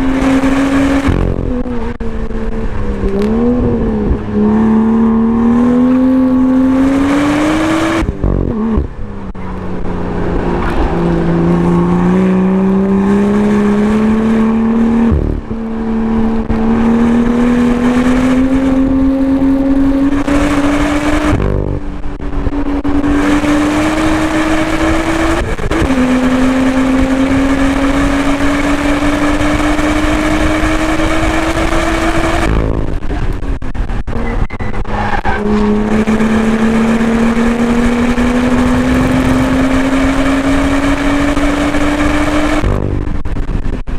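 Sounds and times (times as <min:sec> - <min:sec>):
car engine pulling hard: 0:00.0 - 0:43.9.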